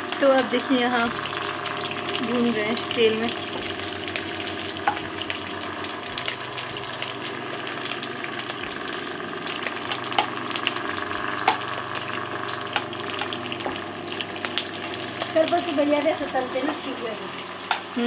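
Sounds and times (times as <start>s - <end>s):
vegetables sizzling in oil: 0.0s - 18.0s
stirring clicks and scrapes in pan: 9.6s - 15.5s.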